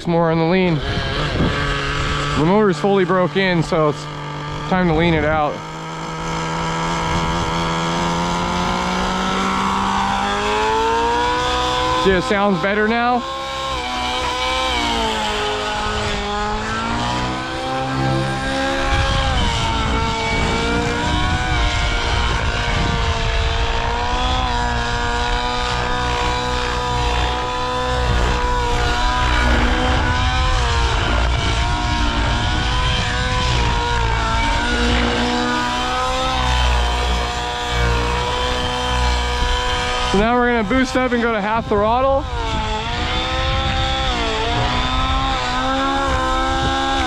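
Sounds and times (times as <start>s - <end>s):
model helicopter engine running: 0.0s - 47.0s.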